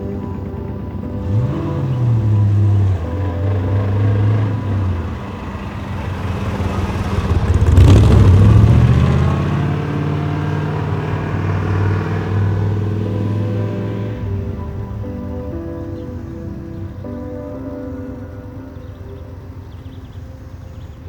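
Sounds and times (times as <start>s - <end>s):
car engine driving past: 1.1s - 15.3s.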